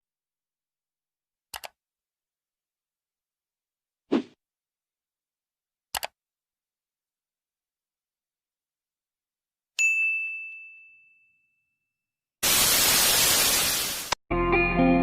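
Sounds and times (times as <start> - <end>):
bell-like ding: 9.8 - 11.9
loud static hiss: 12.4 - 14.2
music: 14.3 - 15.0.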